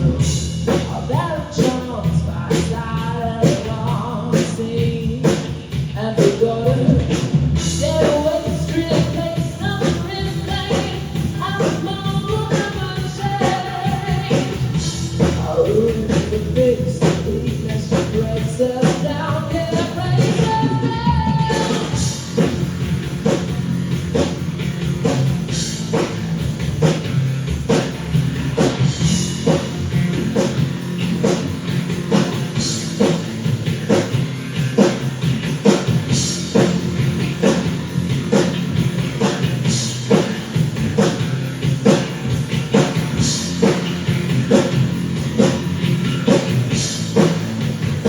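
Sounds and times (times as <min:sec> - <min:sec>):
bass guitar: 0:00.0 - 0:48.0
drum kit steady beat: 0:00.0 - 0:48.0
guitar: 0:00.0 - 0:48.0.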